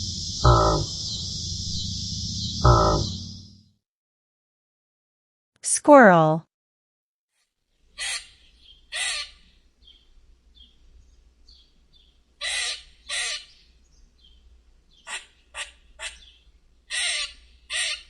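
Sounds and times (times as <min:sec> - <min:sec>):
squirrel calling raspy calls: 0:00.0 - 0:03.3, 0:08.0 - 0:09.5, 0:12.4 - 0:13.6, 0:15.0 - 0:18.0.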